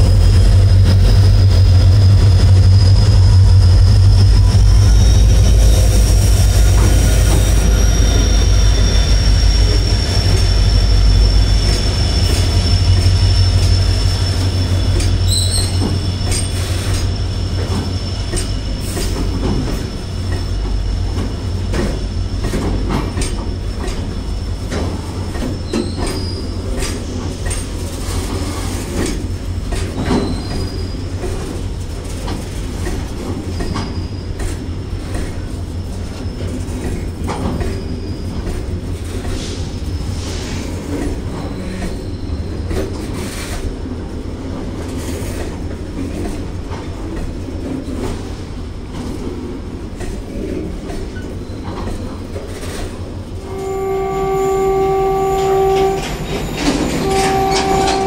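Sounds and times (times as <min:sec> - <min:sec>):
train wheels rumbling on rail: 0:00.0 - 0:58.0
high wheel squeals: 0:01.0 - 0:21.7, 0:23.5 - 0:28.9, 0:29.9 - 0:31.2, 0:33.2 - 0:34.7, 0:35.8 - 0:43.4, 0:51.1 - 0:58.0
wheels clanking over rail joints: 0:55.4 - 0:58.0.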